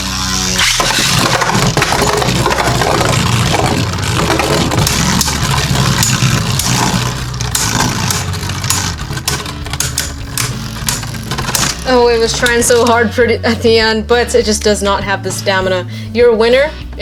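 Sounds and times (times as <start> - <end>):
spinning tops whirring and scraping: 0.0 - 13.2
spinning tops clashing clicks: 0.6 - 13.0.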